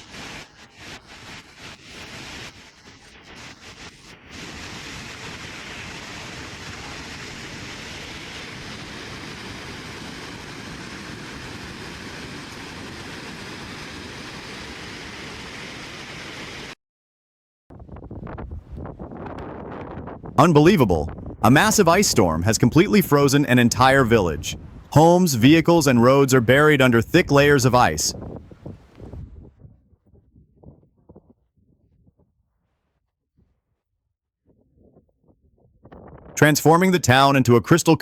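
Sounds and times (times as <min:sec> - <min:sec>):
floodwater rushing: 0:04.3 - 0:16.7.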